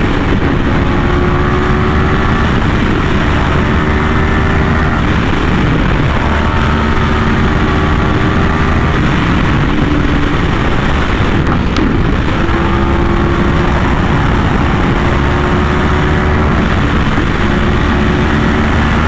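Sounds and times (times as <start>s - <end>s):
motorcycle engine while riding: 0.0s - 19.0s
steady rushing noise: 0.0s - 19.0s.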